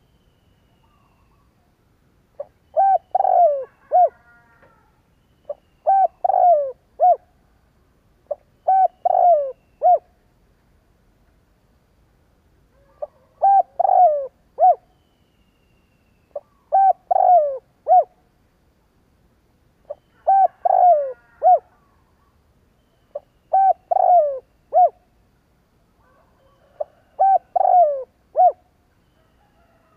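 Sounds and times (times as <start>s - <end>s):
dove cooing: 2.4s - 4.8s, 5.5s - 7.3s, 8.3s - 10.1s, 12.8s - 14.8s, 16.3s - 18.1s, 19.9s - 21.9s, 23.1s - 25.0s, 26.0s - 28.7s.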